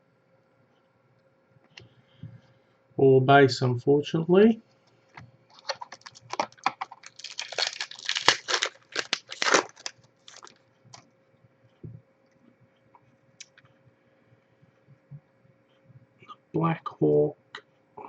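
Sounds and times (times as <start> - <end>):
trading cards rustling and snapping: 5.5 - 10.6.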